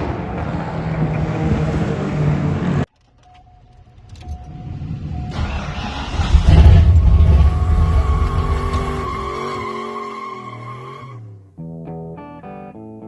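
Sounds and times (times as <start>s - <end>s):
car engine running: 3.7s - 9.7s.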